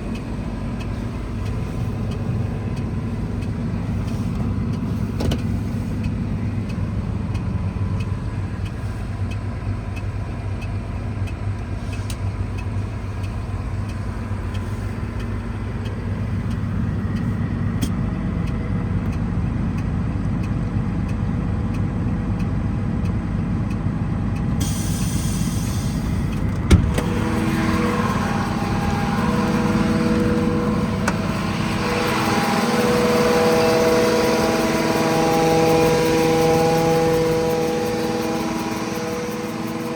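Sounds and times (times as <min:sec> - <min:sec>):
steady whining tones: 0:00.0 - 0:18.8, 0:24.6 - 0:39.9
diesel truck engine running: 0:00.0 - 0:39.9.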